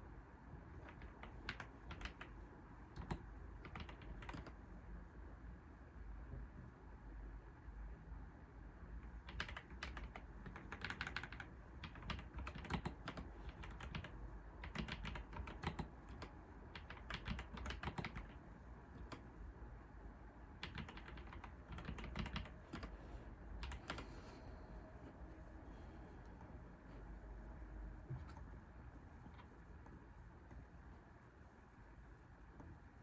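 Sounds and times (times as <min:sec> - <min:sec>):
typing on a keyboard: 0:00.8 - 0:04.6, 0:09.0 - 0:18.4, 0:19.0 - 0:19.3, 0:20.6 - 0:22.9, 0:23.6 - 0:24.1.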